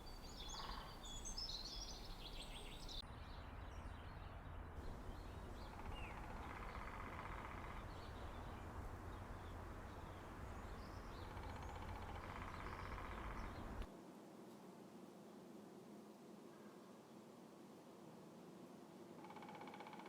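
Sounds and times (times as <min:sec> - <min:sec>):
low outdoor rumble: 0:00.0 - 0:13.9
woodpecker drumming on wood: 0:00.5 - 0:01.0, 0:04.9 - 0:13.9, 0:19.2 - 0:20.0.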